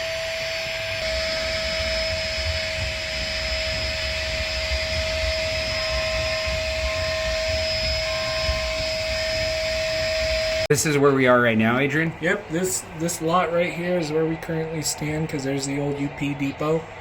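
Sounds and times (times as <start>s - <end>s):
faint second tone: 0.0s - 10.7s
mechanical whooshing with rumble: 0.0s - 10.7s
high whine: 0.0s - 17.0s.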